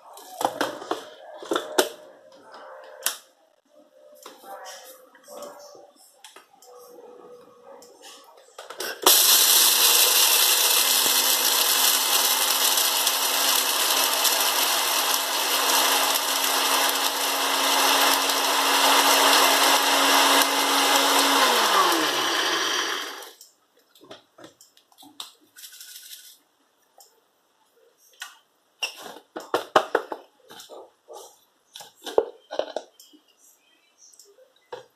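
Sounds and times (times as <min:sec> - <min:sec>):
blender grinding peppercorns: 0:09.0 - 0:23.4.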